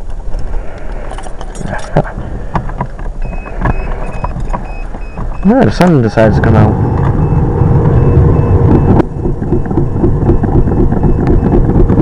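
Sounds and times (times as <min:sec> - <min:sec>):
car engine running roughly: 0:01.1 - 0:12.0
high steady beep pulses: 0:03.2 - 0:12.0.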